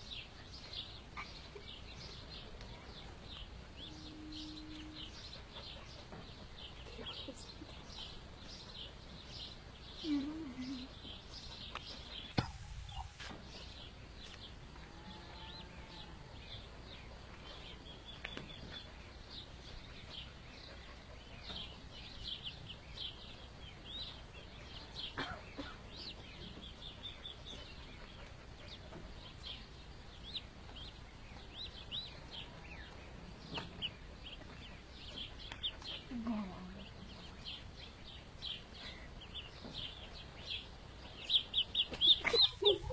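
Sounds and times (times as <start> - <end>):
duckling peeping: 25.6 - 42.9.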